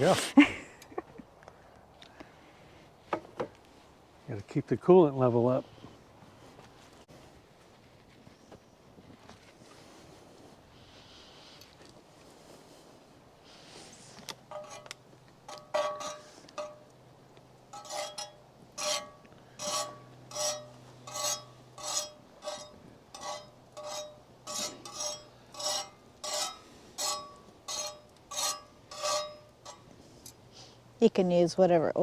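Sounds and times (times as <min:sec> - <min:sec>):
metal utensil scraping griddle: 0:13.7 - 0:16.9, 0:17.7 - 0:30.2.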